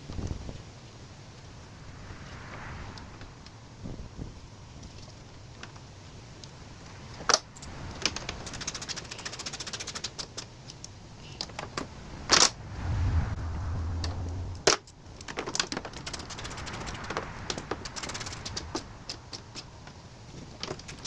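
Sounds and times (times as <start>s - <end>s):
short low hum: 12.6s - 14.7s.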